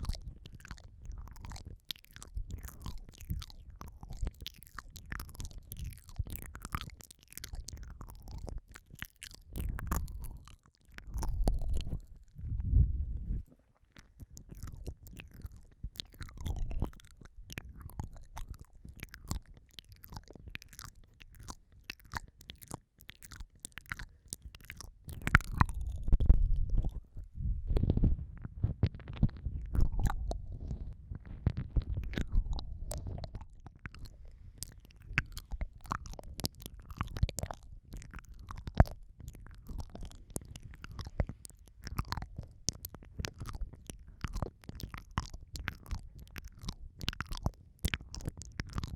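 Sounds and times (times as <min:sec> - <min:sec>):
lips and tongue smacking: 0:00.0 - 0:12.7, 0:13.9 - 0:48.9
sharp mouth clicks: 0:00.0 - 0:12.7, 0:14.0 - 0:27.9, 0:28.9 - 0:48.9
low muffled rumbles: 0:11.1 - 0:13.6, 0:25.3 - 0:33.5.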